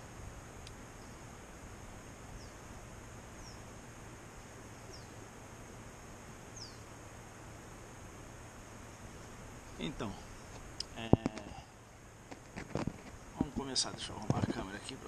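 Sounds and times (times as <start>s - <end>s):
outdoor background hiss: 0.0s - 15.0s
high falling bird chirps: 2.2s - 3.8s, 4.4s - 5.4s, 6.4s - 7.0s.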